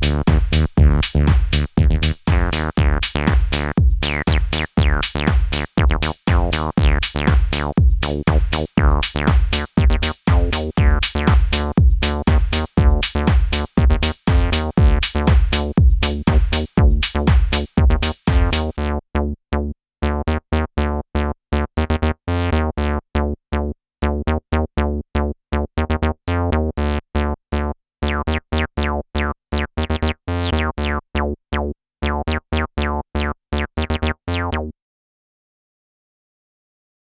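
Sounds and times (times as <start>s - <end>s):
drum loop: 0.0s - 18.8s
squelchy acid synth bassline: 0.0s - 19.0s, 25.6s - 31.4s, 32.0s - 34.7s.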